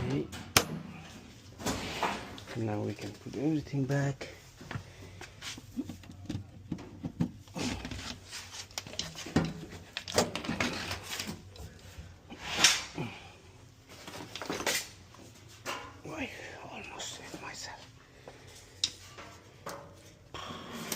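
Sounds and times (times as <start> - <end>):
knocks and clatters of parts: 5.8 - 11.8, 18.9 - 20.2.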